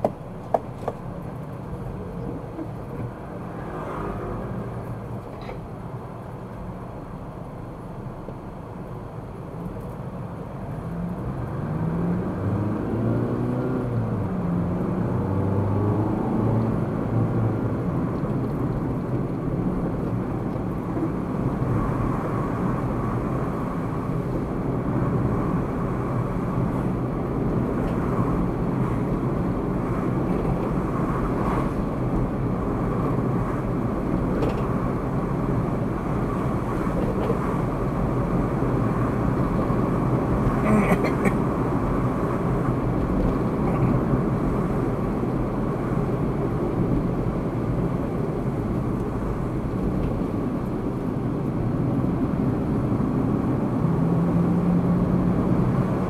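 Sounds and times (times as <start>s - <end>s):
road noise: 0.0s - 56.0s
car engine accelerating: 10.9s - 23.4s.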